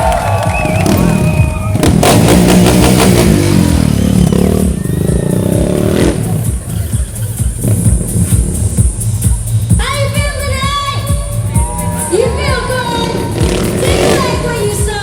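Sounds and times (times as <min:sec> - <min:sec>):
loud music with pounding beat: 0:00.0 - 0:15.0
motorcycle engine revving: 0:00.3 - 0:08.8, 0:12.5 - 0:15.0.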